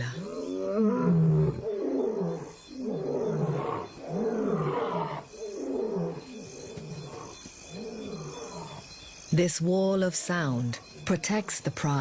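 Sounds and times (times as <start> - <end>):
lions roaring: 0.2 - 8.8.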